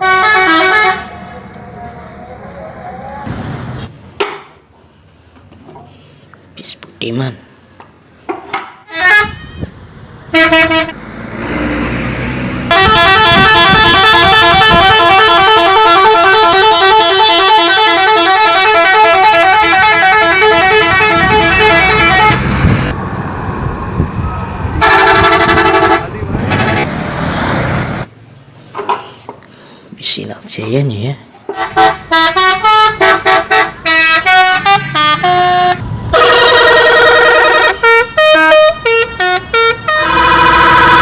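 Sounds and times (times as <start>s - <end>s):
bus musical horn: 0.0s - 1.3s, 8.8s - 11.0s, 12.6s - 22.9s, 24.8s - 26.9s, 31.5s - 41.0s
engine rumble: 0.0s - 6.9s, 7.5s - 16.9s, 18.8s - 29.9s, 31.3s - 41.0s.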